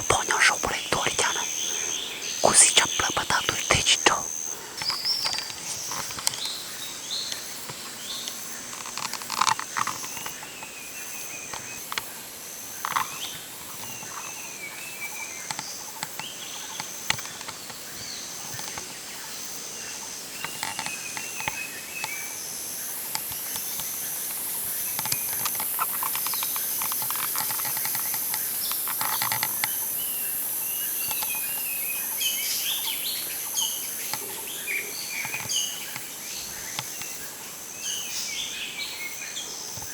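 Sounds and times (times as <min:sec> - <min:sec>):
steady high insect buzz: 0:00.8 - 0:08.2.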